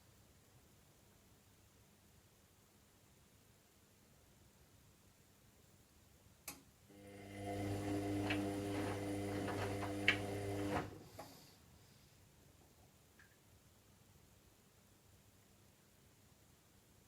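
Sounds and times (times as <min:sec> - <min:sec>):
washing machine motor hum: 0:06.9 - 0:11.2
washing machine click: 0:07.5 - 0:11.0.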